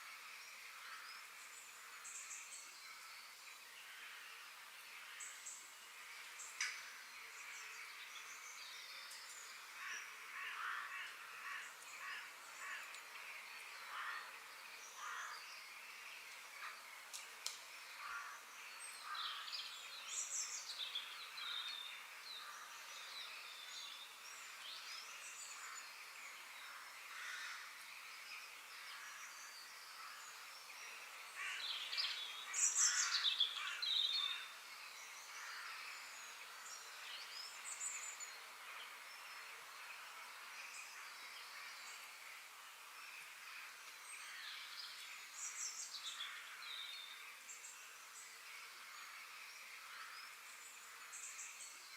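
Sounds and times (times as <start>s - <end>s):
faint steady hiss: 0.0s - 51.9s
birds chirping and calling: 5.1s - 38.3s.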